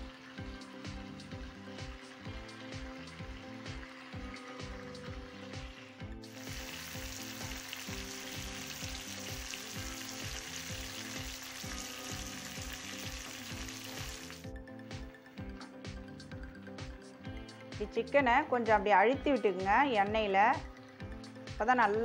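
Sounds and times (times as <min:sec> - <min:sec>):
chicken sizzling in oil: 0:00.0 - 0:14.5
background music with beat: 0:00.0 - 0:22.0.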